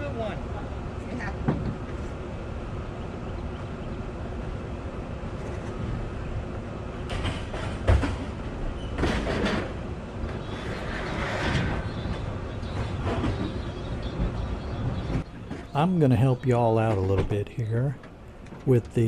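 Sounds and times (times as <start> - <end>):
vehicle rumbling: 0.0 - 19.0
metallic clanks and rattles: 7.1 - 15.8.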